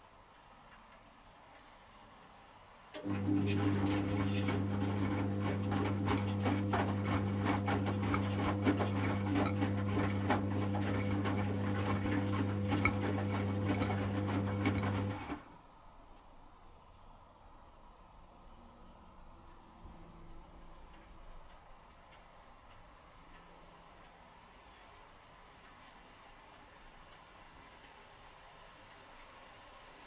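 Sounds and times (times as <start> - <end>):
washing machine motor hum: 3.0 - 15.6.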